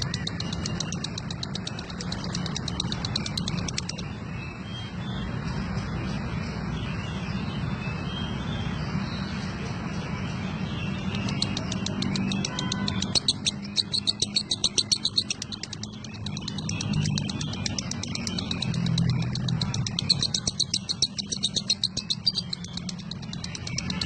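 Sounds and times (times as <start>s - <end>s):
lovebird chattering: 0.0s - 4.1s, 10.9s - 24.0s.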